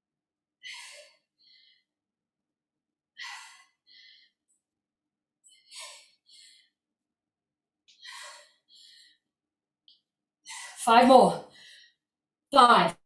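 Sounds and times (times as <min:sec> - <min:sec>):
woman breathing hard: 0:00.6 - 0:02.0, 0:03.1 - 0:04.8, 0:05.4 - 0:07.0, 0:07.9 - 0:09.4.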